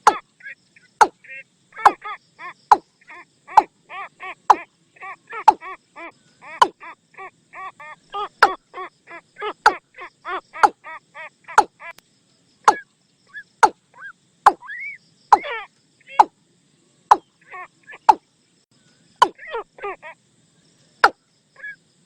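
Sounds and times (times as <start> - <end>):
bird calling hollow notes: 0.0 - 2.0, 2.6 - 2.9, 4.4 - 4.7, 5.4 - 5.8, 6.5 - 6.8, 8.2 - 8.6, 9.6 - 9.8, 10.6 - 10.8, 11.5 - 11.9, 12.7 - 16.3, 17.1 - 17.3, 17.9 - 18.2, 19.2 - 19.6.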